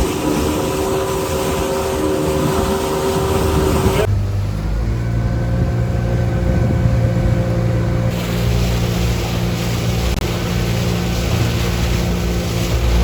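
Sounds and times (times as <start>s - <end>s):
wind noise: 0.0s - 4.1s, 4.9s - 13.0s
outboard motor droning: 0.0s - 13.0s
rushing water: 0.0s - 13.0s.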